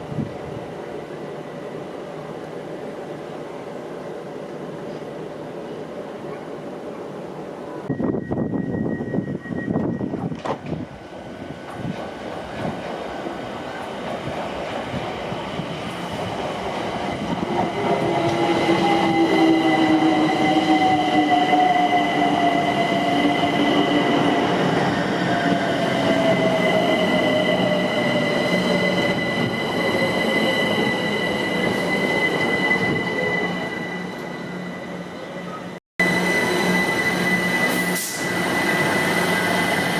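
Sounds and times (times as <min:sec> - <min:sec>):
train wheel squeal: 0:07.8 - 0:10.4, 0:17.1 - 0:39.9.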